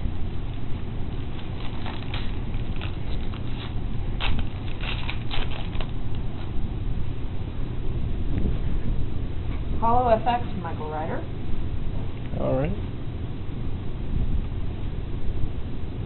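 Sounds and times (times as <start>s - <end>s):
steady low hum: 0.0s - 16.0s
foil wrapper crinkling: 1.2s - 6.5s
cards rustling: 1.3s - 6.0s.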